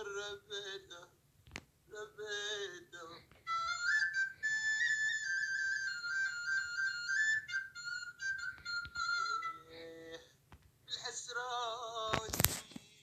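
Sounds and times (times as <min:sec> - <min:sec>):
man's voice: 0:00.0 - 0:01.2, 0:01.9 - 0:03.5, 0:09.6 - 0:13.0
reed flute melody: 0:03.4 - 0:10.2.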